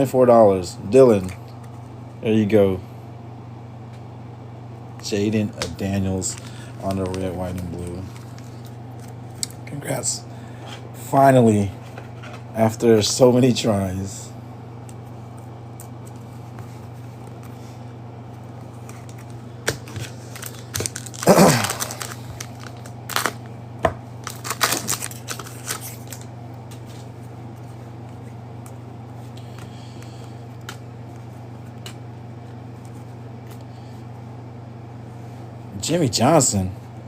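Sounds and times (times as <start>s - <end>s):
wrapper crinkling: 18.8s - 23.5s, 24.2s - 26.3s
wrapper tearing: 19.0s - 23.5s, 24.2s - 26.3s.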